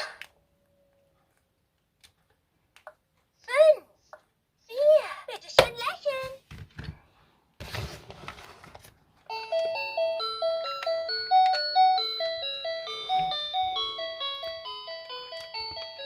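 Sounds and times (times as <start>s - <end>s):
toy chime melody: 9.3s - 16.0s.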